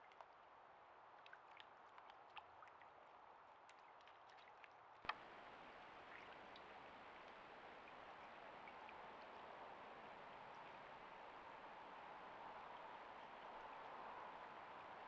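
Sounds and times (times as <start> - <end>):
creek water rushing: 5.1 - 15.0.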